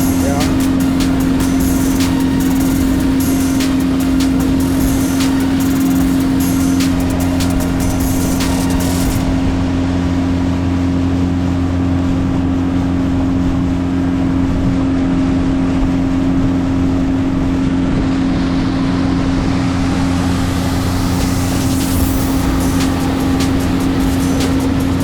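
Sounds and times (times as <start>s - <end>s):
water noise: 18.3s - 25.0s.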